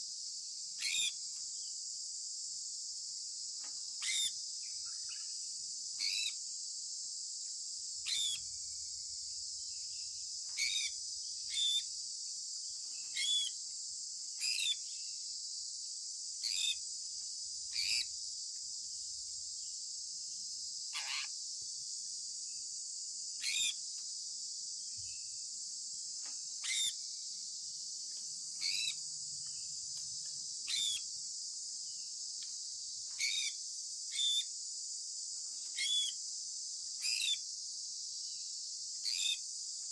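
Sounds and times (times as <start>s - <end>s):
parrot chirping: 26.6s - 26.9s, 28.6s - 29.0s, 30.7s - 31.0s.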